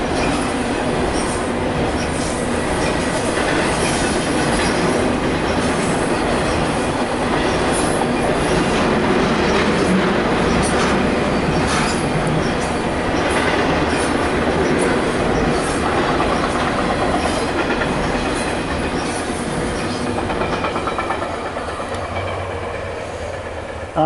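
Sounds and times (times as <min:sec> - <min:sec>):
freight train rumbling on bridge: 0:00.0 - 0:24.0
wheels clattering over rails: 0:00.0 - 0:24.0.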